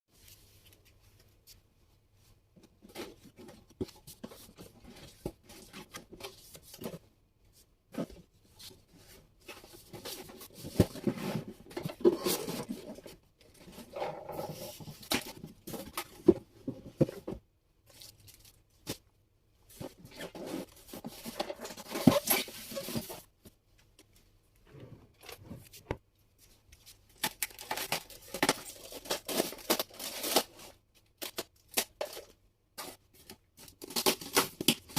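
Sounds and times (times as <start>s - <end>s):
packaging tearing and rustling: 27.2s - 32.3s, 33.6s - 34.9s.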